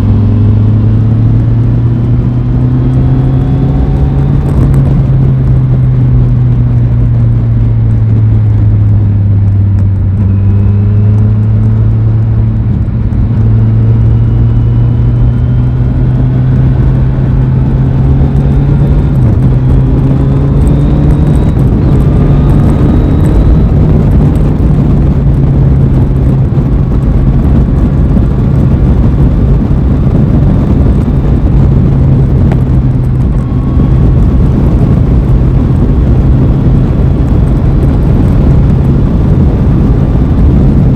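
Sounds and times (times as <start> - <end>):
steady rush of noise: 0.0 - 40.9.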